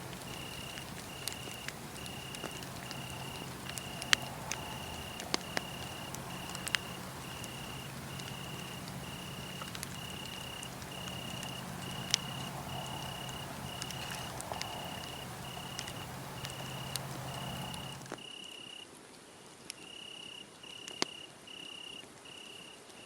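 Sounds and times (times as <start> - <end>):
wood fire crackling: 0.0 - 18.2
cricket chirping: 0.0 - 18.8, 19.9 - 22.8.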